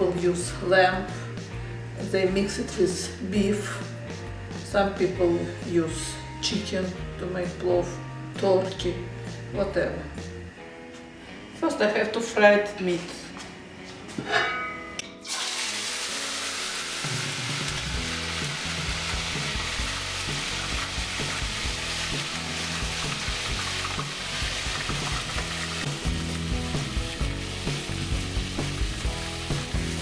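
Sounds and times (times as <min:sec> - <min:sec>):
meat sizzling in oil: 0:15.2 - 0:30.0.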